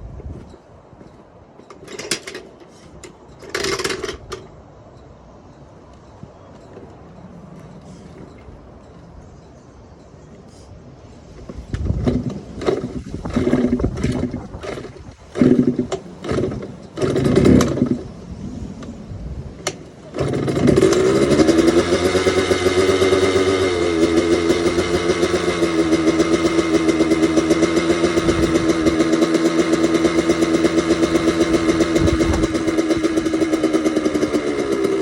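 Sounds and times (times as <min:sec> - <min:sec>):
two-stroke engine running: 0:03.4 - 0:04.5, 0:11.8 - 0:18.2, 0:19.9 - 0:35.0.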